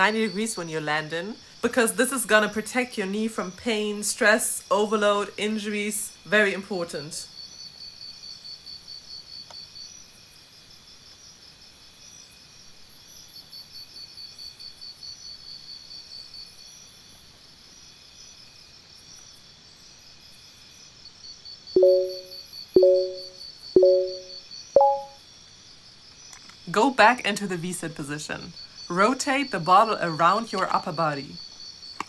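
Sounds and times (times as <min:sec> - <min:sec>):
short electronic beeps: 0:21.8 - 0:25.2.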